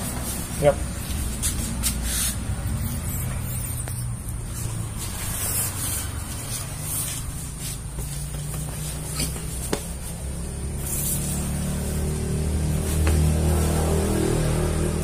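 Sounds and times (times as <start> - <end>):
steady low hum: 0.0 - 15.0
foam mat swishing: 12.7 - 13.8.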